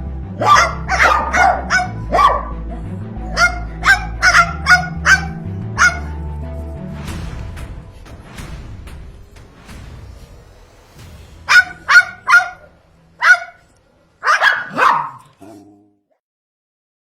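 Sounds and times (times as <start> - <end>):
parrot barking calls: 0.4 - 6.2, 11.5 - 15.7.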